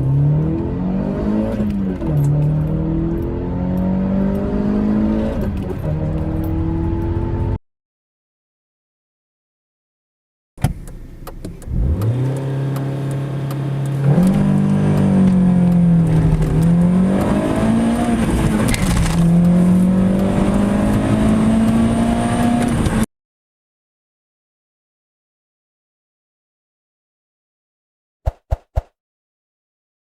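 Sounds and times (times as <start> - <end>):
car engine accelerating hard: 0.0 - 7.6, 11.6 - 23.0.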